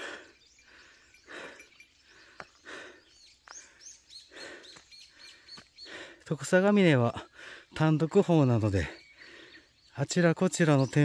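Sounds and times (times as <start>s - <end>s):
songbirds chirping: 0.0s - 11.0s
footsteps on a wet trail: 2.2s - 6.2s.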